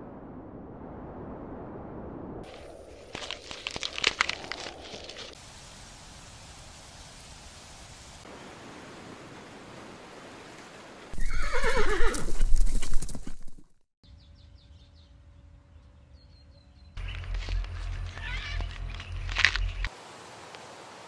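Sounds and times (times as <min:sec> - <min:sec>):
horse neighing: 0:11.2 - 0:12.5.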